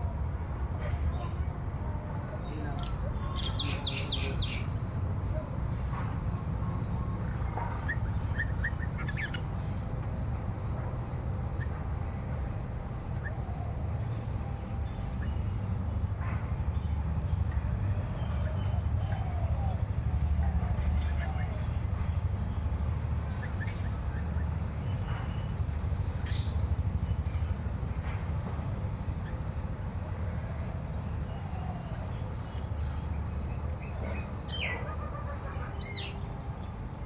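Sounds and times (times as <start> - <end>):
small birds chirping: 2.4 - 10.8, 21.0 - 27.3, 31.1 - 36.7.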